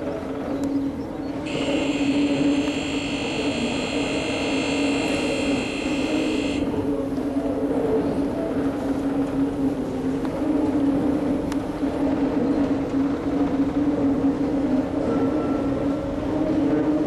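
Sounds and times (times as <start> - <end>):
high multi-tone whine: 1.4 - 6.9
excavator mechanical drone: 1.4 - 7.4.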